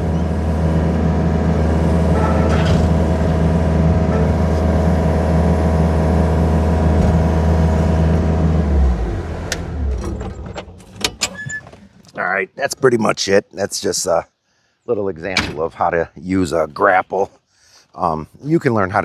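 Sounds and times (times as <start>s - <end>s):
engine running with low hum: 0.0s - 11.4s.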